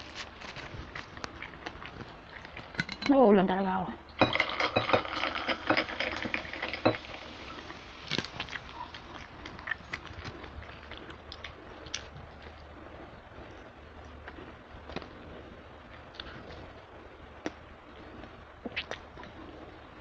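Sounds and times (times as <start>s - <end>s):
paper wrapping crinkling: 0.0s - 2.6s
close chewing and mouth clicks: 0.0s - 2.9s, 7.5s - 20.0s.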